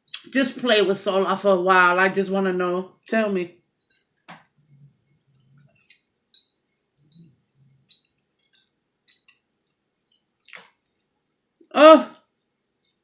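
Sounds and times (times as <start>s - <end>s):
eating clicks and clinks: 5.6s - 11.4s.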